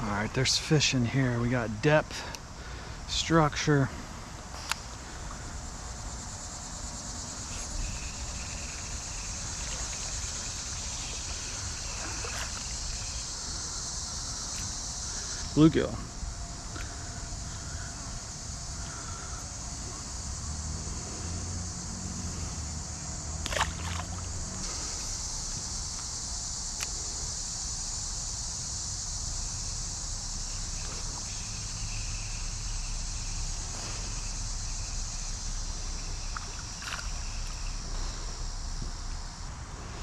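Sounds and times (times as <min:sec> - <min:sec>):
creek water sloshing around legs: 0:07.3 - 0:14.8, 0:23.3 - 0:25.6.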